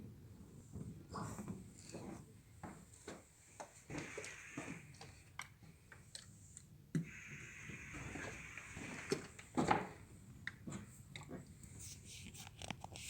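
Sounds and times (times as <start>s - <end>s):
hiss: 3.9s - 5.2s, 7.0s - 9.4s.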